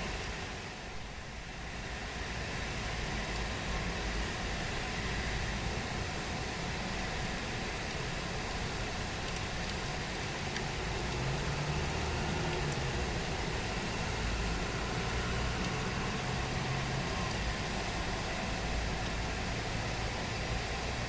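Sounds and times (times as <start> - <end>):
low engine-like hum: 0.0 - 21.0
steady rain hiss: 0.0 - 21.0
faint drip ticks: 7.8 - 13.6, 15.0 - 16.2, 17.2 - 18.0, 18.8 - 19.3.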